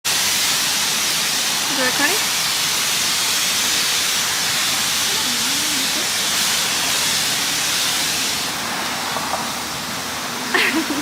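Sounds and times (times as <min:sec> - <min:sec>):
pressure washer water spray: 0:00.1 - 0:11.0.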